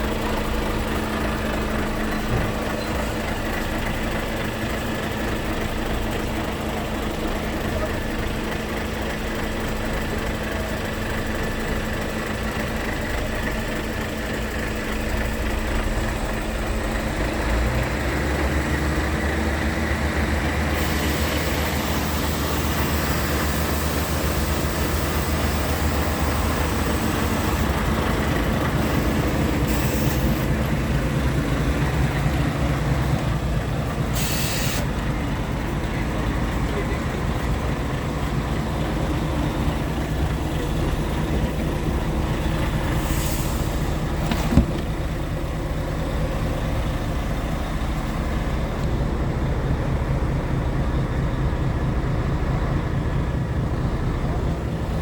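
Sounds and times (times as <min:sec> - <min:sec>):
diesel engine rumbling: 0:00.0 - 0:55.0
hiss: 0:28.8 - 0:30.6, 0:34.1 - 0:35.0, 0:43.0 - 0:44.1.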